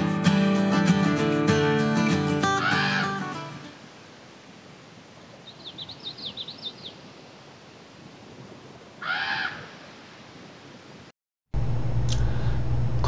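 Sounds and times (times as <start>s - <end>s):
steady background hiss: 2.8s - 11.1s
songbird singing high notes: 5.4s - 7.1s.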